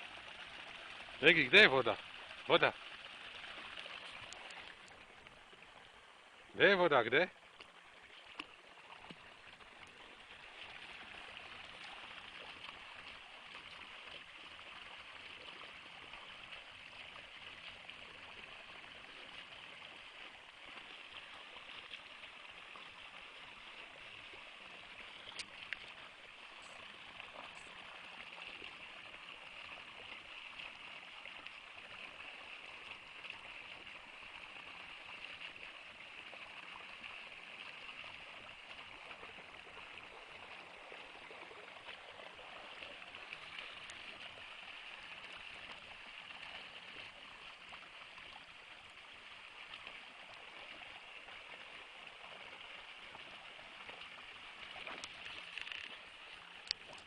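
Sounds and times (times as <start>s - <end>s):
stream flowing: 0.0s - 57.0s
faint clicks: 3.8s - 5.4s, 25.3s - 26.0s, 54.8s - 56.0s, 56.6s - 57.0s.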